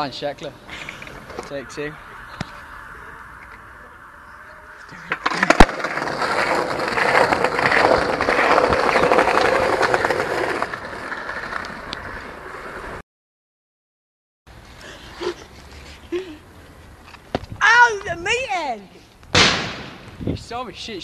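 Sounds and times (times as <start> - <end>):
skateboard wheels rolling on pavement: 0.2 - 13.0.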